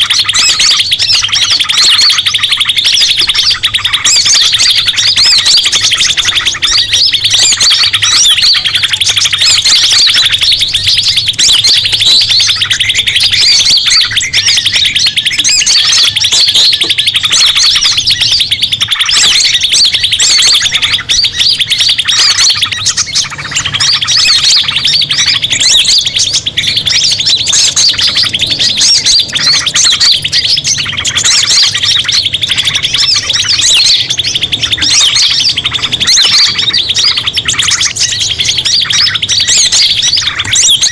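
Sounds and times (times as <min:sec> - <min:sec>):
small birds chirping chorus: 0:00.0 - 0:40.9.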